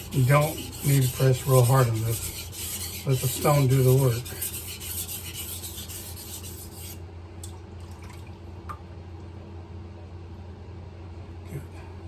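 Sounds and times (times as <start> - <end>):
knife rasping on whetstone: 0.0 - 7.0
steady low hum: 0.0 - 12.0
water drips: 7.4 - 9.3.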